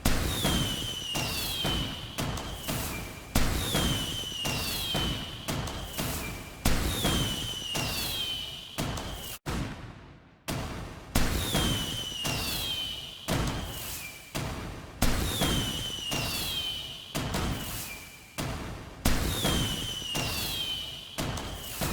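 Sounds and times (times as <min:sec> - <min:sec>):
fireworks bangs and thuds: 0:00.0 - 0:21.9
high falling whistle: 0:00.3 - 0:05.4, 0:06.0 - 0:09.4, 0:11.5 - 0:14.3, 0:15.4 - 0:18.0, 0:19.6 - 0:21.0.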